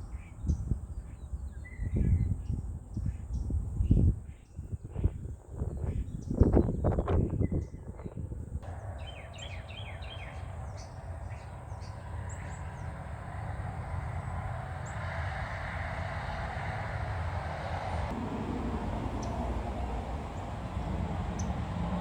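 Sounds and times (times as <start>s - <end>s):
small birds chirping: 0.0s - 15.0s, 19.2s - 21.8s
steady low rumble: 5.0s - 22.0s.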